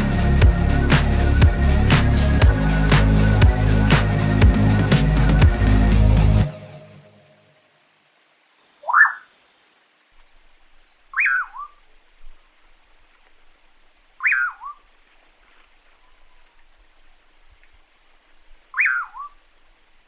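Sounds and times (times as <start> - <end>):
faint steady hiss: 6.5 - 20.0.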